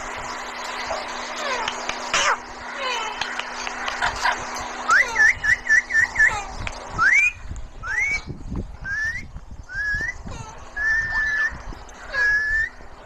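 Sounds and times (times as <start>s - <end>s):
parrot whistling: 4.9s - 12.8s.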